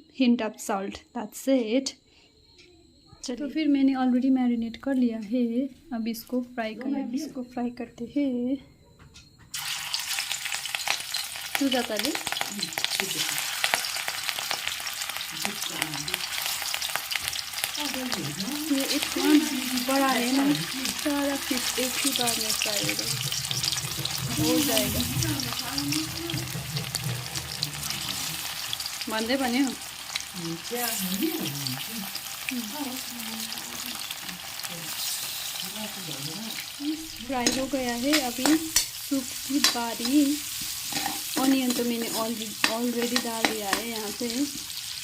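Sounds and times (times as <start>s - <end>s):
fish frying with crackles: 9.5s - 45.0s.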